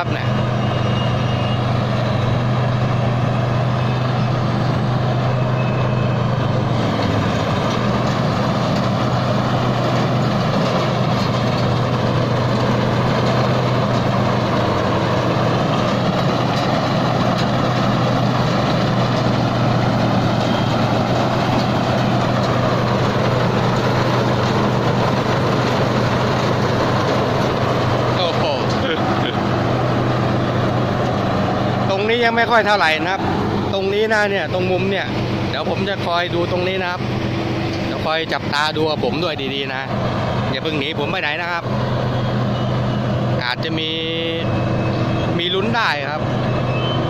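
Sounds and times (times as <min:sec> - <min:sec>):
harvester engine running: 0:00.0 - 0:47.0
track chains rattling: 0:06.6 - 0:31.2.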